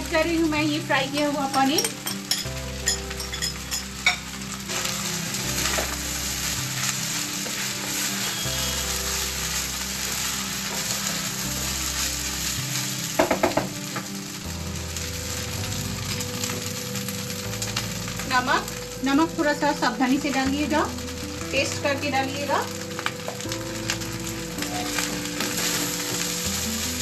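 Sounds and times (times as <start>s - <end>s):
rice sizzling in a pan: 0.0s - 27.0s
wooden spatula scraping pan: 5.6s - 11.2s.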